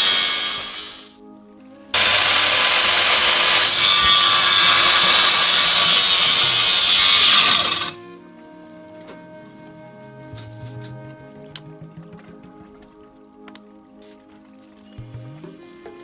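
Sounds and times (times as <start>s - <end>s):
power saw cutting wood: 0.0s - 1.1s, 2.0s - 8.0s.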